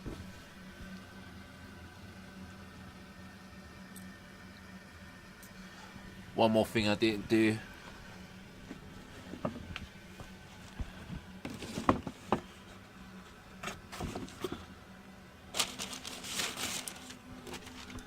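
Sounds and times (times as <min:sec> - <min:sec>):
low steady hum: 0:00.0 - 0:18.0
packaging rustle: 0:15.5 - 0:18.0.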